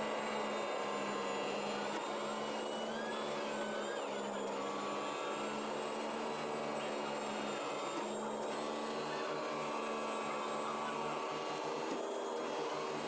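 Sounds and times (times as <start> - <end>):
cutting machine motor hum: 0.0 - 13.0.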